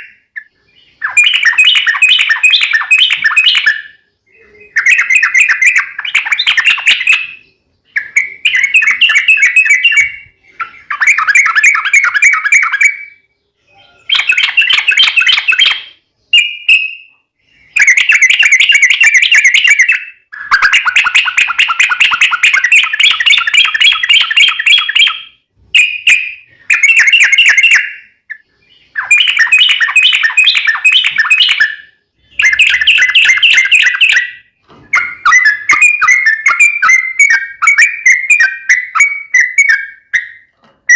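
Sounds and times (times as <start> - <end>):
bulbul singing chattering notes: 17.8 - 40.5.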